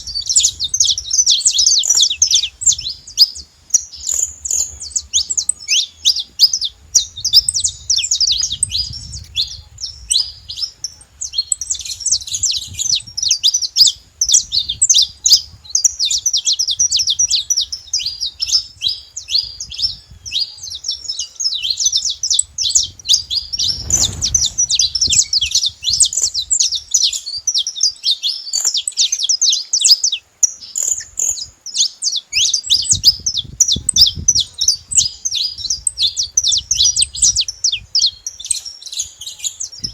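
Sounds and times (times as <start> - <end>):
finches chirping and trilling: 0.0 - 39.9.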